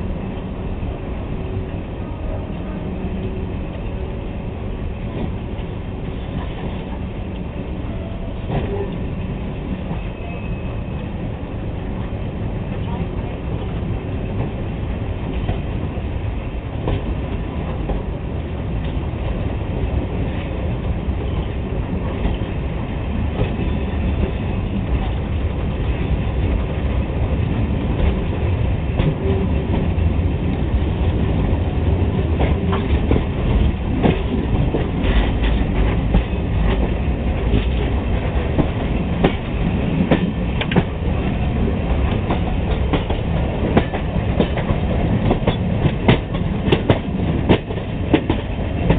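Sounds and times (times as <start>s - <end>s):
train rumbling along track: 0.0s - 48.9s
wheels clacking over rail joints: 32.0s - 48.9s.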